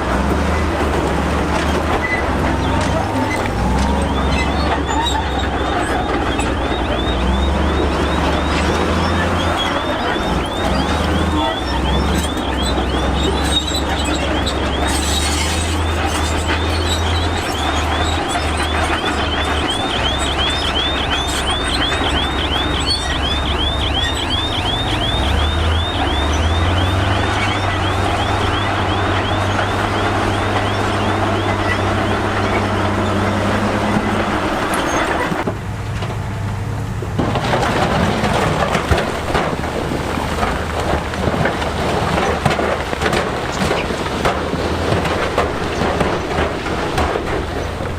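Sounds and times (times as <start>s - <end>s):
diesel machinery engine drone: 0.0s - 47.9s
high squeak: 1.6s - 35.4s.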